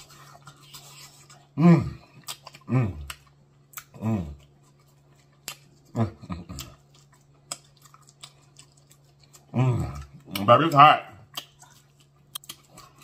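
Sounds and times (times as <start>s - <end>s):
man chewing: 0.0s - 13.0s
man moaning mmm: 1.6s - 3.1s, 4.0s - 4.4s
wet mouth clicks and smacks: 11.3s - 12.6s.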